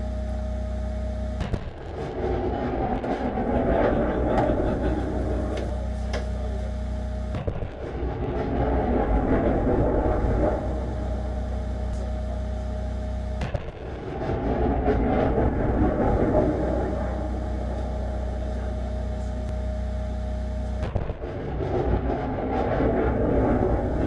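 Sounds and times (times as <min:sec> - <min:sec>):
diesel truck engine drone: 0:00.0 - 0:24.0
faint steady whine: 0:00.0 - 0:24.0.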